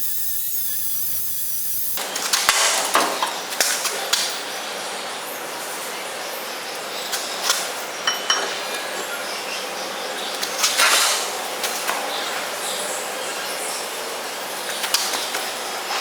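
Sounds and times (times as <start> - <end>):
steady hiss: 0.0 - 2.1
metallic knocks and clinks: 8.1 - 8.6.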